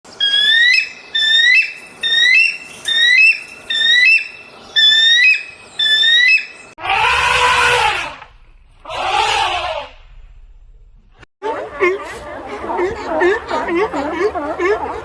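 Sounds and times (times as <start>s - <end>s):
bird whistled calls: 0.2s - 6.7s.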